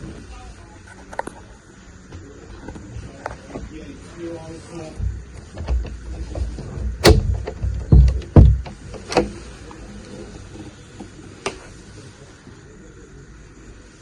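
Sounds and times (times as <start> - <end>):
steady low hum: 0.0 - 14.0
heavy thumps and knocks: 4.9 - 9.4.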